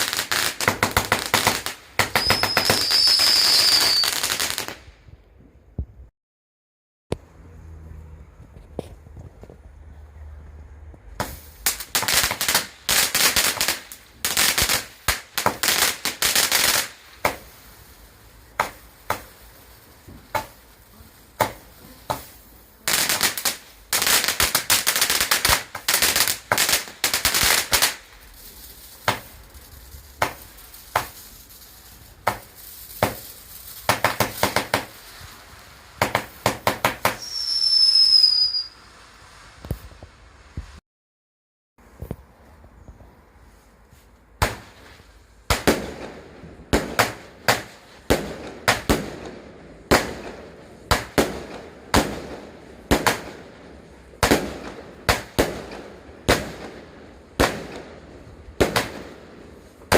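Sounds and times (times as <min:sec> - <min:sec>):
fireworks crackling and banging: 0:00.0 - 0:06.1, 0:07.1 - 0:40.8, 0:41.8 - 0:59.9
firework whistle: 0:02.0 - 0:04.4, 0:37.0 - 0:39.7.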